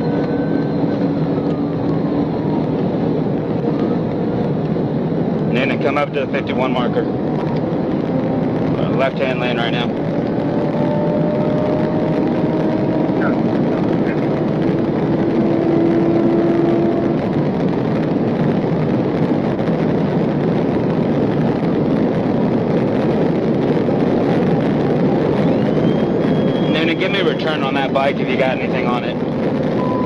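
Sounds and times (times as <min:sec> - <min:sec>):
car engine note rising: 0:00.0 - 0:19.1, 0:29.5 - 0:30.0
road and wind noise roar: 0:00.0 - 0:30.0.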